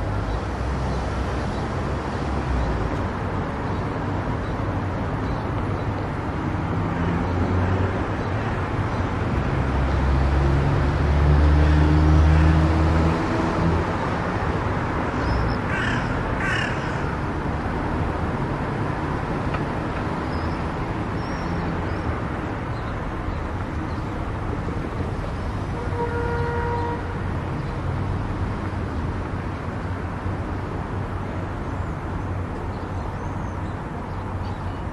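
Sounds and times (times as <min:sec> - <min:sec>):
car road and tyre noise: 0:00.0 - 0:34.9
crow cawing: 0:15.7 - 0:17.2.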